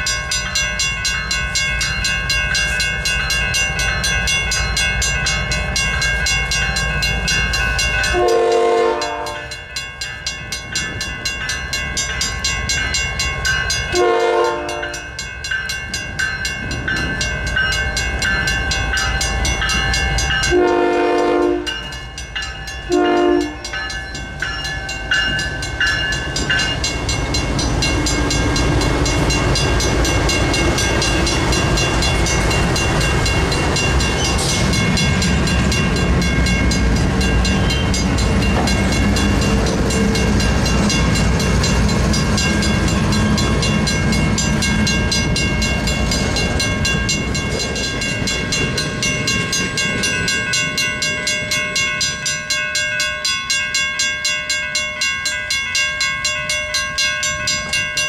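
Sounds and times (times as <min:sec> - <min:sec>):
train wheel clatter: 0:00.0 - 0:54.8
freight train rumble: 0:00.0 - 0:58.0
railroad crossing bell ringing: 0:00.0 - 0:58.0
locomotive horn blasts: 0:08.1 - 0:09.6, 0:13.9 - 0:15.0, 0:20.5 - 0:21.8, 0:22.9 - 0:23.7.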